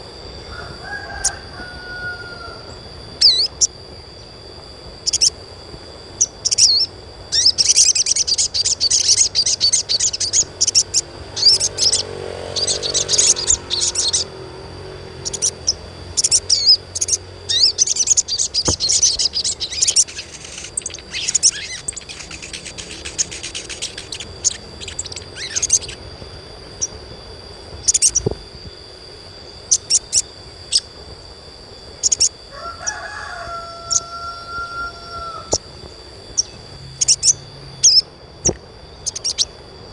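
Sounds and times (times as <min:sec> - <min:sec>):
bird giving sharp high chirps: 0:06.2 - 0:14.4, 0:15.2 - 0:26.1, 0:36.3 - 0:39.5.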